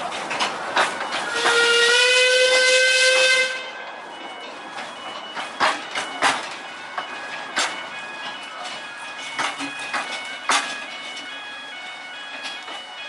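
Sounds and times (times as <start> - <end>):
steam whistle blast: 1.3 - 3.8.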